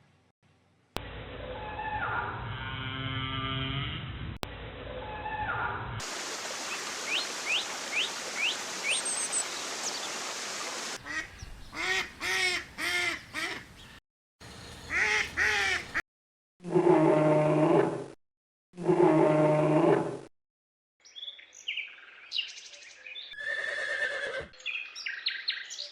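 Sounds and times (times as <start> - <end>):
steady hiss: 6.0 - 11.0
poultry calling: 11.0 - 13.8, 14.9 - 16.0.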